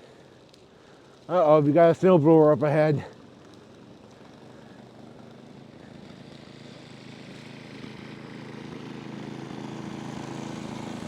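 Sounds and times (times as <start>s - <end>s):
snowblower engine running: 0.0s - 11.0s.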